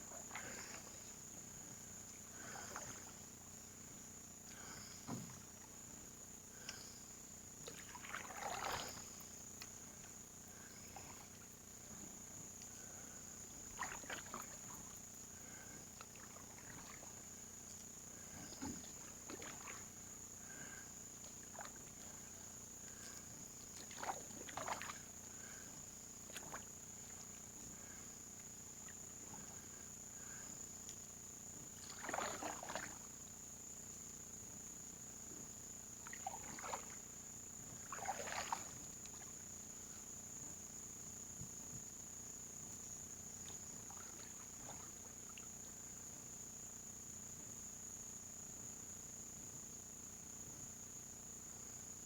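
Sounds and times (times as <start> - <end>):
paddle splashing in water: 0.1 - 1.1, 7.6 - 10.1, 13.5 - 28.0, 31.7 - 33.2, 36.0 - 39.5.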